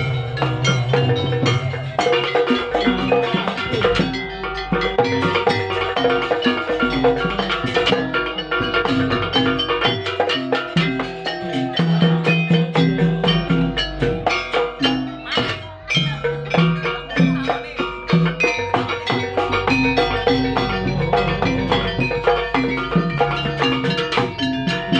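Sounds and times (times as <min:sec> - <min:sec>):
bass line: 0:00.0 - 0:03.0, 0:19.4 - 0:24.0
struck percussion and drums: 0:00.0 - 0:24.9.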